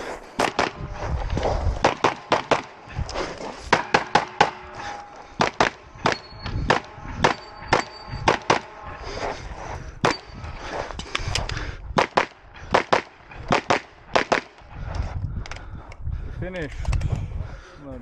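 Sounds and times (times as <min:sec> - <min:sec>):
pistol firing rapidly: 0:01.8 - 0:02.8, 0:05.4 - 0:08.6, 0:12.0 - 0:14.6.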